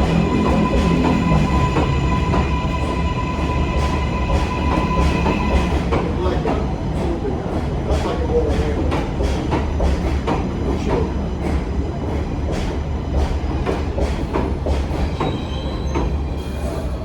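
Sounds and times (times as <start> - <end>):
faint high wheel squeal: 0.0 - 5.8, 15.0 - 17.0
subway train rumble: 0.0 - 17.0.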